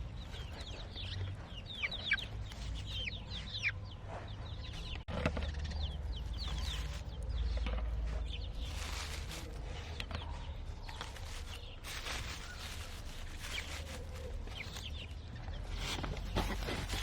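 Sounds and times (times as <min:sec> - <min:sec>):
hen clucking: 0:00.0 - 0:07.3
chicks peeping: 0:00.0 - 0:17.0.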